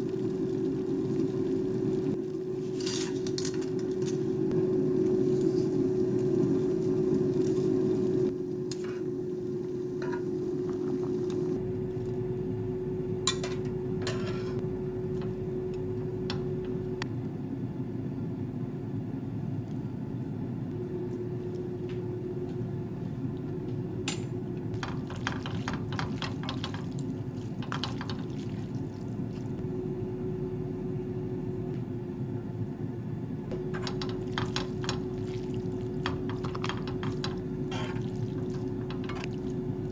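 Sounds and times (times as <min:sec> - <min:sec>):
steady hum: 0:00.0 - 0:18.0
dishes and utensils clinking: 0:13.3 - 0:14.6
liquid sounds: 0:24.6 - 0:29.6, 0:33.8 - 0:39.9.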